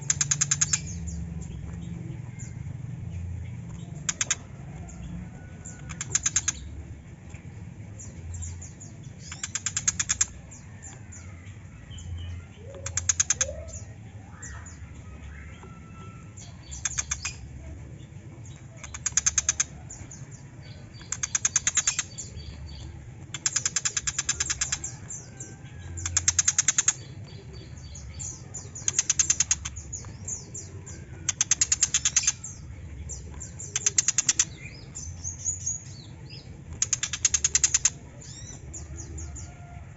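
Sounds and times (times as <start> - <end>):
bird harsh chattering: 4.0 - 4.6, 9.2 - 10.4, 12.7 - 14.8, 16.4 - 17.4, 18.8 - 20.1, 20.7 - 32.6, 33.4 - 35.8, 36.7 - 38.6.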